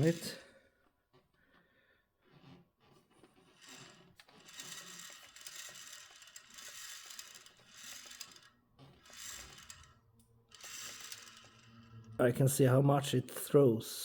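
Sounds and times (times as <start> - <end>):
metallic rasping and clicking: 0.0 - 0.4, 2.2 - 12.2.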